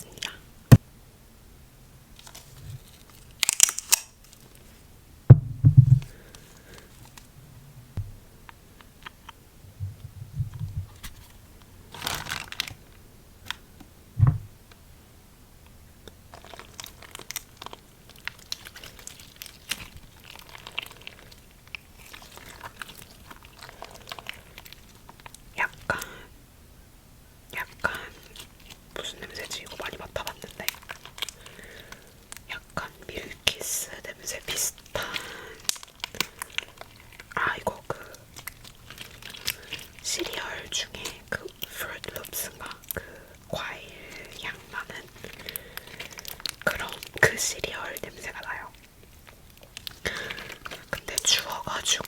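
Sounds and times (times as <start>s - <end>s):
slime crinkling and crackling: 2.2s - 4.8s, 10.9s - 13.6s, 16.2s - 26.1s, 27.5s - 52.0s
soft thumps: 5.3s - 6.1s, 8.0s - 8.2s, 9.7s - 11.0s, 14.2s - 14.6s.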